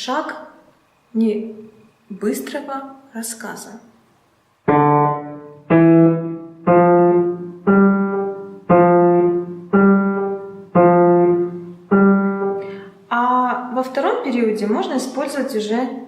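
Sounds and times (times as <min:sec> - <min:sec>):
piano playing slow detached notes: 0:04.7 - 0:13.0.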